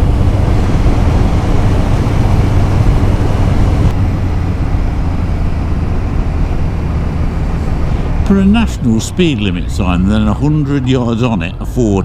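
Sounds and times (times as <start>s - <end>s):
wind rush on microphone: 0.0s - 11.0s
motorcycle engine running: 0.0s - 12.0s.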